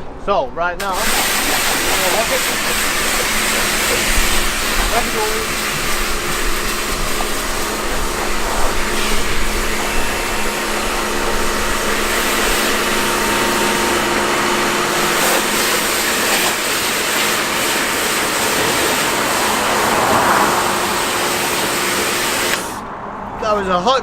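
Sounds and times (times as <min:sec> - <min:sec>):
water spraying on a car: 0:00.8 - 0:22.9.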